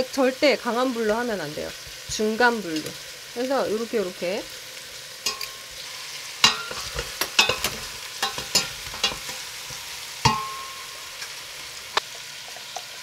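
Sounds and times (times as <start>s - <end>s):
chicken sizzling in a pot: 0.0s - 13.0s
metal tongs clacking and scraping: 5.2s - 5.7s, 6.4s - 11.4s.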